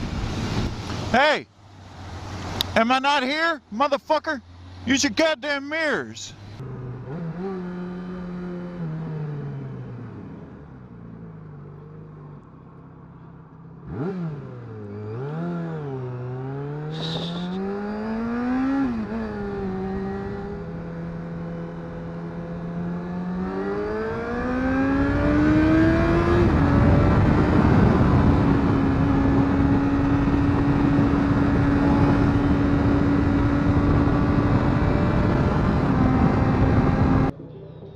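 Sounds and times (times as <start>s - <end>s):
motorcycle engine revving: 6.5s - 11.4s, 13.8s - 37.4s
wind rush: 25.9s - 37.3s
high-pitched chirp: 37.3s - 37.9s.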